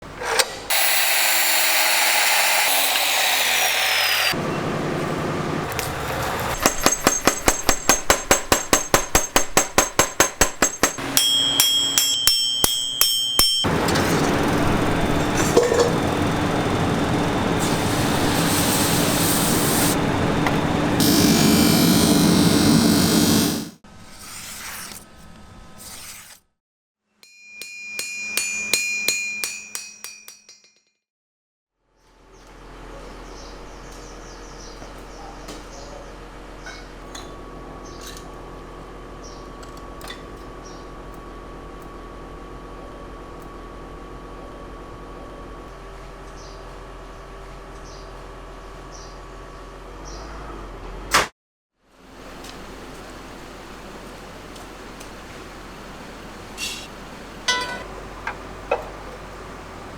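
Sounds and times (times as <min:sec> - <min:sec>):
power tool grinding: 0:00.1 - 0:04.4, 0:13.7 - 0:23.8
hammer strikes on steel: 0:06.6 - 0:13.7, 0:27.2 - 0:30.8, 0:57.5 - 0:58.1
ringing metal clinks: 0:10.4 - 0:13.7, 0:27.2 - 0:30.9, 0:57.5 - 0:57.9.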